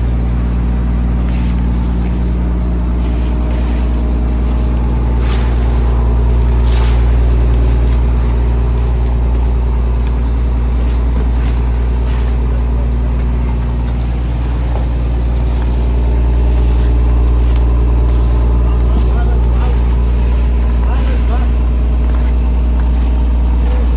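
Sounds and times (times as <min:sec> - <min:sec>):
boat engine droning: 0:00.0 - 0:23.9
thin high whine: 0:00.0 - 0:23.9.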